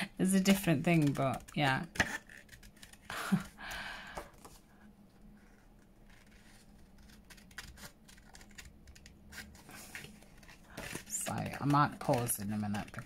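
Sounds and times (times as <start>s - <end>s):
scissors snipping paper: 0.5s - 3.5s, 6.3s - 13.0s.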